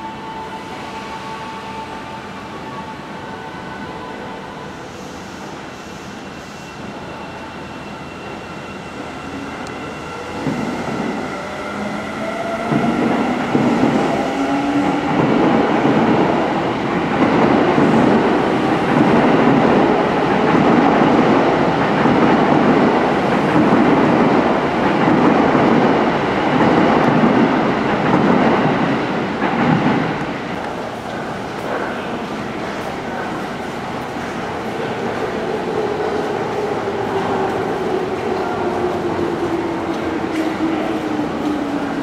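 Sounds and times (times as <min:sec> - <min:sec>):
train wheels rumbling on rails: 0:09.1 - 0:42.0.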